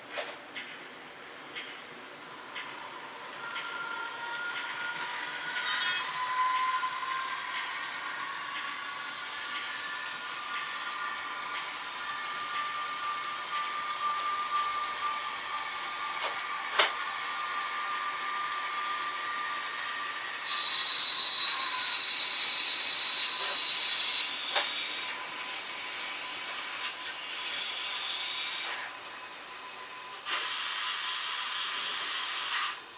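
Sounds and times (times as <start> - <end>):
model train motor whine: 2.0 - 32.9
loud high whistle: 3.4 - 32.9.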